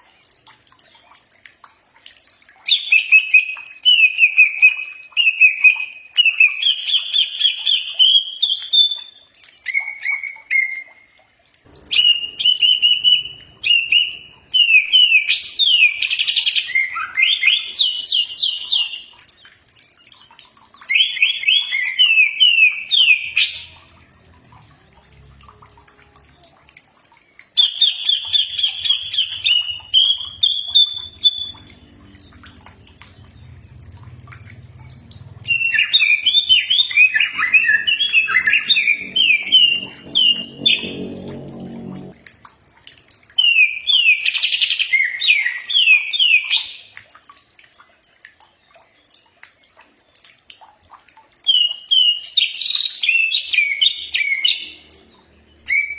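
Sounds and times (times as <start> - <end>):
bird singing fast whistled song: 27.6 - 31.6, 35.5 - 40.5, 55.6 - 55.9.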